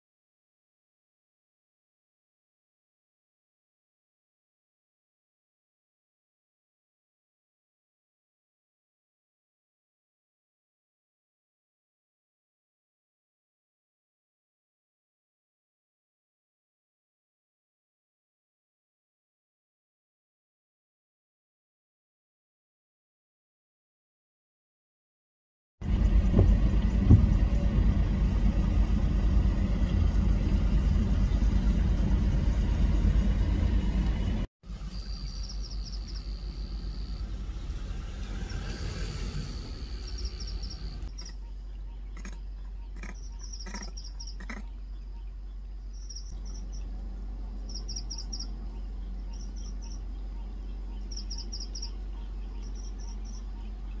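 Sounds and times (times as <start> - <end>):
car engine low rumble: 25.8 - 54.0
bird chirping: 34.9 - 37.8, 39.8 - 47.0, 47.6 - 54.0.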